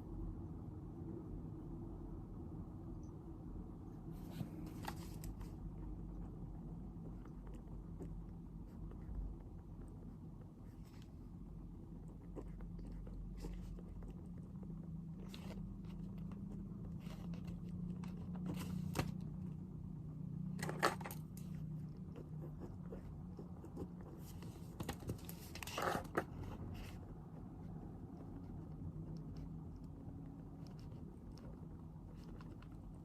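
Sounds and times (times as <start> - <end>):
low room hum: 0.0 - 33.0
paper rustling: 4.2 - 5.5.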